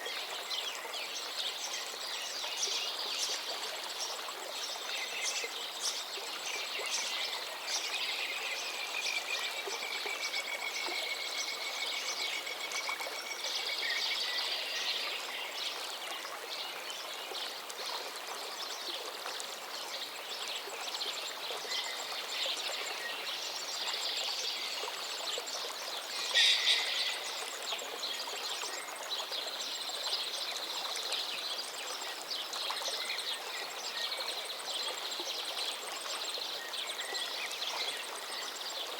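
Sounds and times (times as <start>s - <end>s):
running water rushing: 0.0s - 38.9s
birds chirping and singing: 26.2s - 27.4s.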